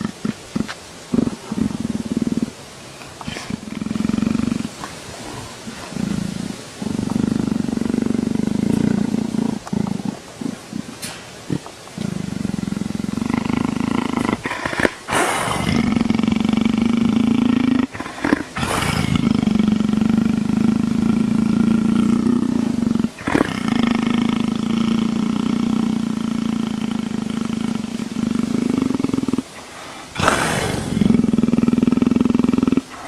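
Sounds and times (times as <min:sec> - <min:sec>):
leopard purring: 0:00.0 - 0:33.0
breathy exhale: 0:29.5 - 0:31.0.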